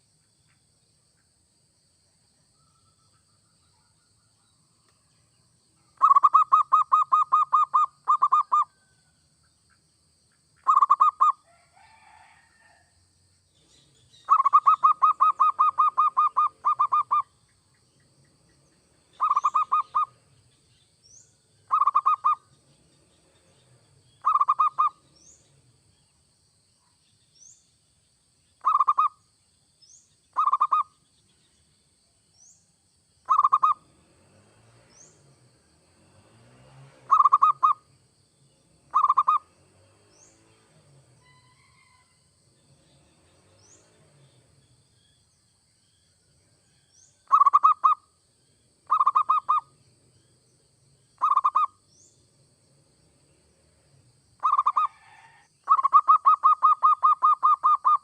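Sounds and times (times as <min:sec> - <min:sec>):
dove cooing: 0:06.0 - 0:08.7, 0:10.6 - 0:11.3, 0:14.3 - 0:17.2, 0:19.2 - 0:20.2, 0:21.7 - 0:22.4, 0:24.2 - 0:25.0, 0:28.6 - 0:29.1, 0:30.4 - 0:30.8, 0:33.3 - 0:33.8, 0:37.1 - 0:37.8, 0:38.9 - 0:39.5, 0:47.3 - 0:48.0, 0:48.9 - 0:49.7, 0:51.2 - 0:51.7, 0:54.4 - 0:58.0.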